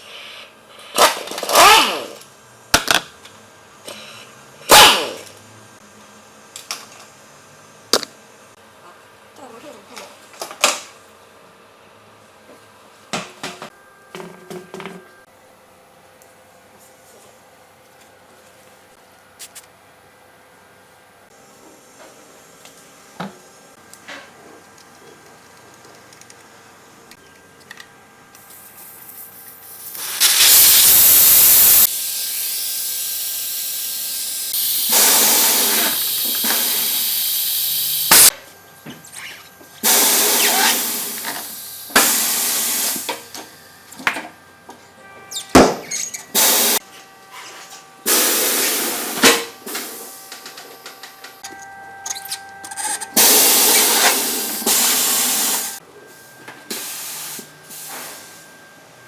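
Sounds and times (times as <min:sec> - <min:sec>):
compressed air hissing: 0:03.9 - 0:05.2, 0:28.5 - 0:38.3, 0:39.8 - 0:43.1, 0:46.3 - 0:46.8, 0:48.0 - 0:50.4, 0:53.2 - 0:55.8.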